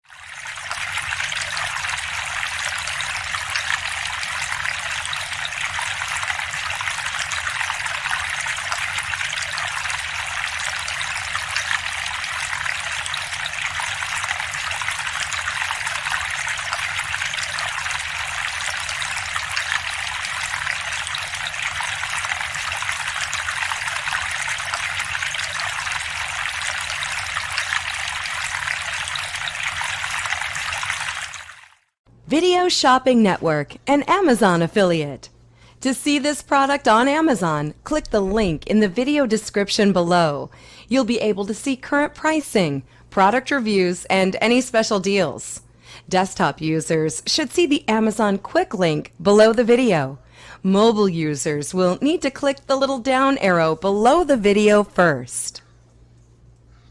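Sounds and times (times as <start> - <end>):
fountain water trickling and splashing: 0.0 - 32.0.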